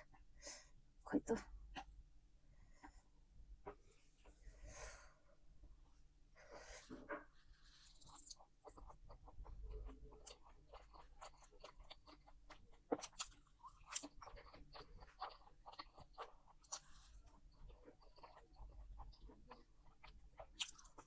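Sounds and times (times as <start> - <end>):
person chewing food: 6.8 - 21.0.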